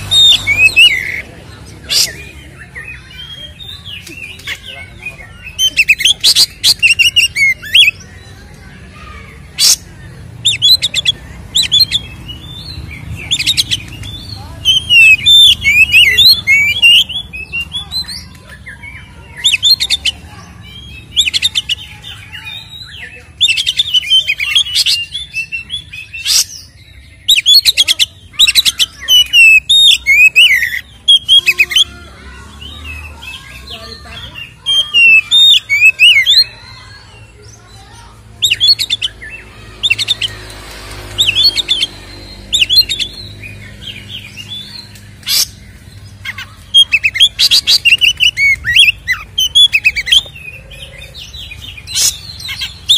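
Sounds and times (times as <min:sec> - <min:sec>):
songbird singing whistles: 0:22.4 - 0:31.9, 0:34.5 - 0:36.6, 0:46.5 - 0:52.9.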